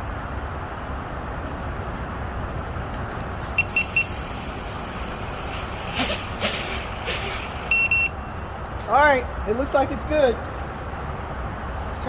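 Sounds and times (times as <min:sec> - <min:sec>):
low outdoor rumble: 0:00.0 - 0:12.0
quick electronic beeps: 0:03.6 - 0:04.2, 0:07.7 - 0:08.3.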